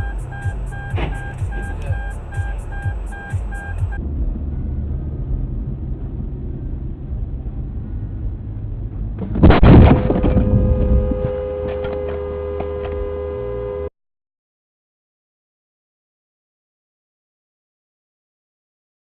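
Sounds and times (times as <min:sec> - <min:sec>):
steady two-note tone: 0:00.0 - 0:04.9
road and engine noise: 0:00.0 - 0:13.9
debris clattering: 0:09.2 - 0:11.3
loud car crash: 0:09.2 - 0:12.2.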